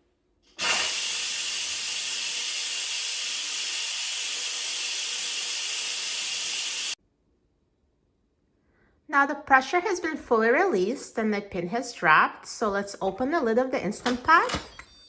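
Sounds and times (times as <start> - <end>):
pressure cooker steam hissing: 0.5 - 7.0.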